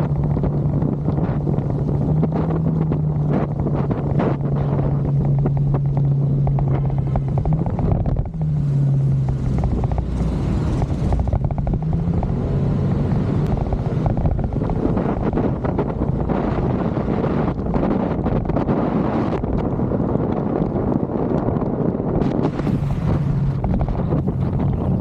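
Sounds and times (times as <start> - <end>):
motorcycle engine running: 0.0 - 16.8, 22.3 - 25.0
wind buffeting on microphone: 0.0 - 25.0.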